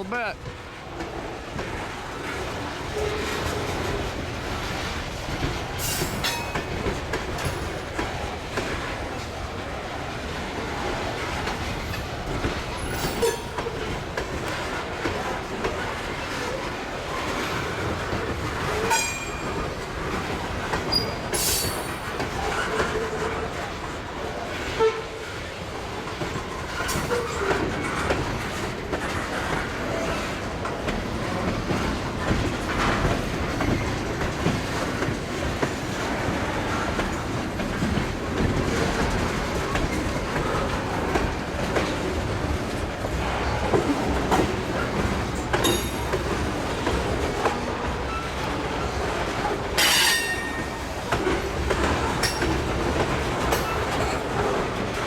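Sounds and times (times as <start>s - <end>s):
freight train cars rolling: 0.0s - 55.0s
wheels clicking over rail joints: 0.4s - 24.0s, 25.9s - 55.0s
wheels squealing on rail: 2.9s - 3.9s, 5.7s - 7.8s, 11.4s - 23.7s, 24.5s - 28.6s, 43.1s - 52.7s.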